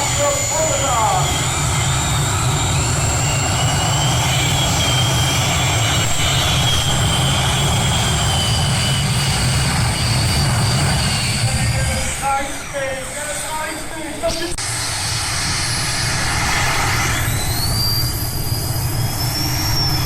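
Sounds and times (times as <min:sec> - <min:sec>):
tractor engine running loud: 0:00.0 - 0:12.2
thin high whine: 0:00.0 - 0:20.0.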